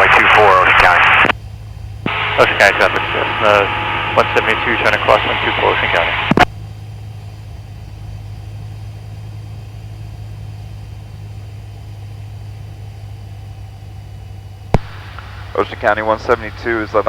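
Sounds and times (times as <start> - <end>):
piston aircraft engine droning: 0.0 - 17.0.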